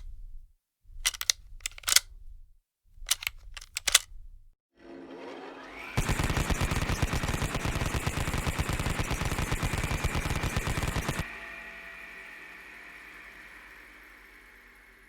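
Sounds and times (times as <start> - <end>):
automatic gunfire burst: 6.0 - 11.3
steady high whine: 6.0 - 15.0.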